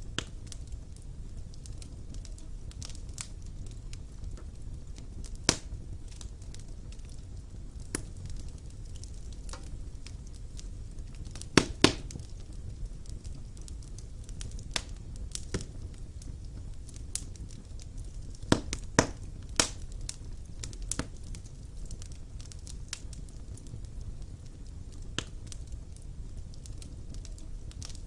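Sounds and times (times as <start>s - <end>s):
fire crackling and popping: 0.0s - 28.0s
low rumble of fire: 0.0s - 28.0s.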